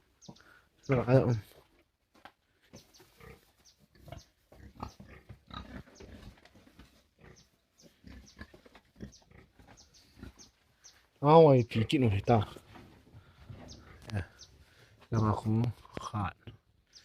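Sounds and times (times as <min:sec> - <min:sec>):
pigs grunting: 0:03.1 - 0:10.5.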